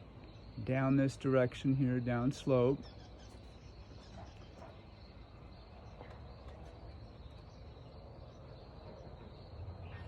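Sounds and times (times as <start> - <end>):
birds chirping: 0.0 - 10.0
insects chirping: 0.0 - 10.0.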